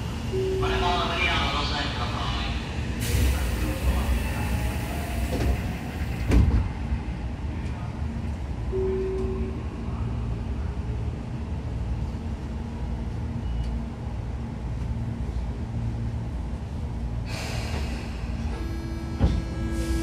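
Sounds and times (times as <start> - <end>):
train wheels rumbling: 16.6 - 20.0.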